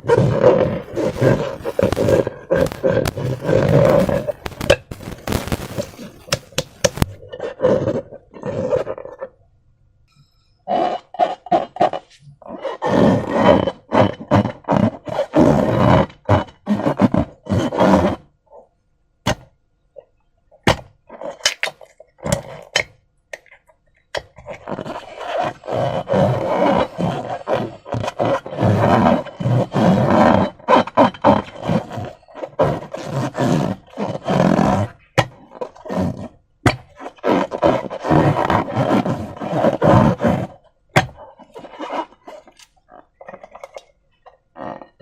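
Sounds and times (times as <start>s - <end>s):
slime squelching: 0.0s - 9.4s, 20.0s - 45.0s
sharp clicks: 0.8s - 7.2s.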